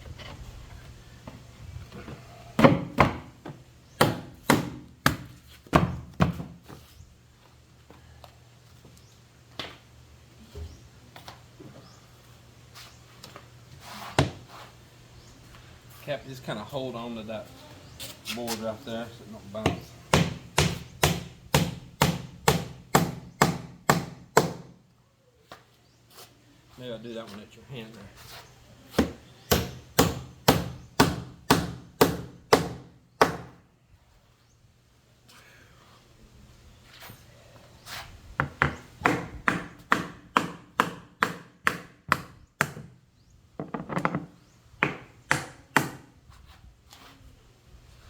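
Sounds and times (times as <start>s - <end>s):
hammer striking nail into wood: 4.0s - 6.4s, 19.6s - 24.8s, 29.0s - 33.6s, 38.6s - 43.0s, 44.8s - 46.1s
wooden boards knocking: 43.6s - 45.1s.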